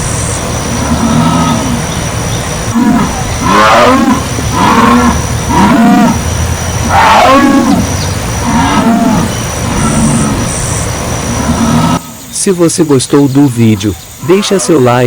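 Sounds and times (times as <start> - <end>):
jaguar grunting roars: 0.6 - 12.3.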